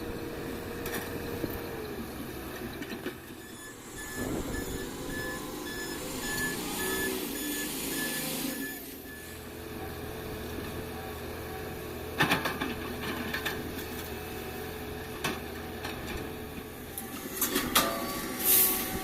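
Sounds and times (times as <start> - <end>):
diesel engine running: 0.0 - 19.0
reversing alarm beeping: 3.3 - 9.5.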